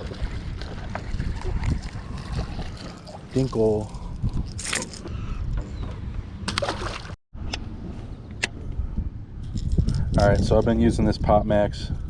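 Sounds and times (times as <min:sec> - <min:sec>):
water sloshing around a boat: 0:00.0 - 0:07.2
sharp splashes or knocks: 0:06.4 - 0:07.2.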